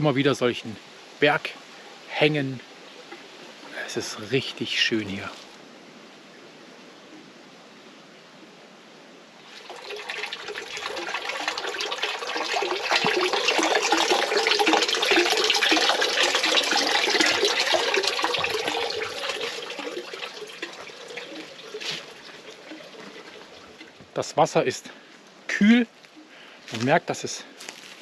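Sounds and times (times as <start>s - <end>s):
fountain water splashing: 9.5s - 24.9s.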